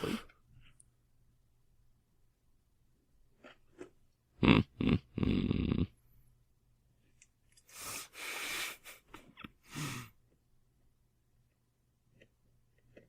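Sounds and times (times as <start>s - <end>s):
snoring snort: 4.4s - 5.9s.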